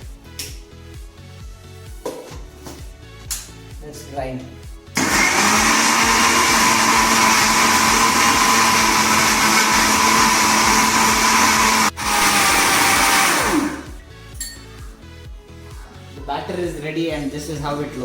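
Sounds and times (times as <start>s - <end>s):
mixer grinder running: 5.0s - 14.0s.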